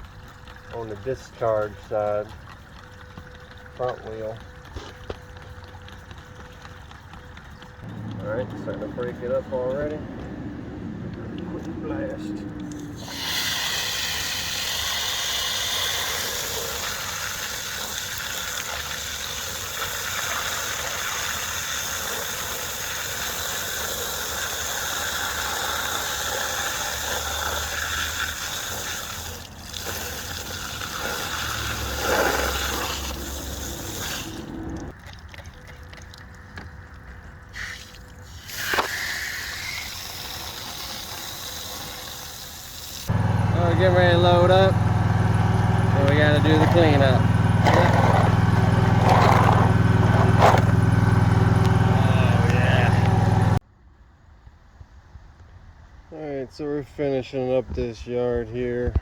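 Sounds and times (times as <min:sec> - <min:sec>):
water spray hissing: 0:12.7 - 0:34.9, 0:37.5 - 0:43.1.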